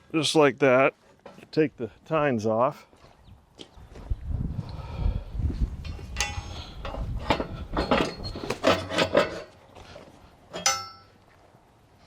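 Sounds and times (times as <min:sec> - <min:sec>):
metal clanks and clinks: 0:05.8 - 0:09.6, 0:10.5 - 0:11.2.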